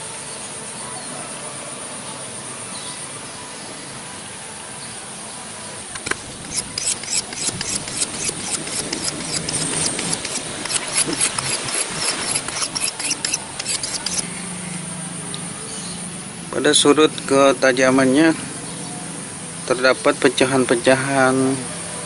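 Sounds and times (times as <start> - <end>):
hatchet edge rasping scrapes: 6.0 - 14.2.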